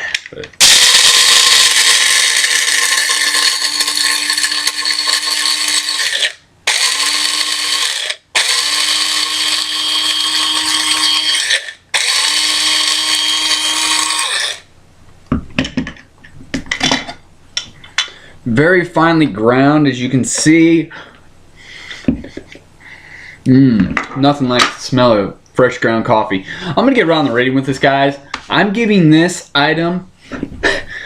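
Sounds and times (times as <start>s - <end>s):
electric coffee grinder grinding: 0.6s - 14.7s.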